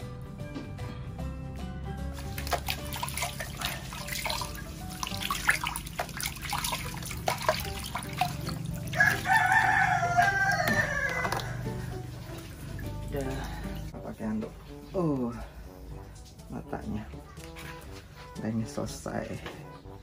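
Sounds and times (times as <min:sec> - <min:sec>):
water splashing in basin: 0:02.1 - 0:15.2.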